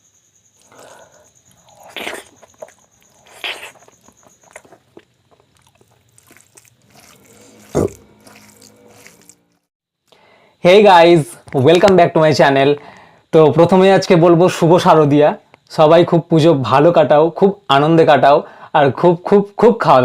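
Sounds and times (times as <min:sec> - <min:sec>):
cricket-like trill: 0:00.0 - 0:20.0
biting and chewing: 0:00.6 - 0:09.7.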